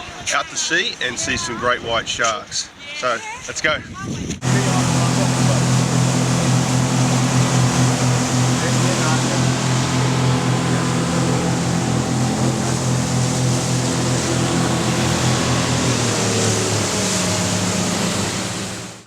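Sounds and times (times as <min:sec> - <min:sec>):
motorboat engine: 0:04.4 - 0:19.0
wind and water rushing: 0:04.4 - 0:19.0.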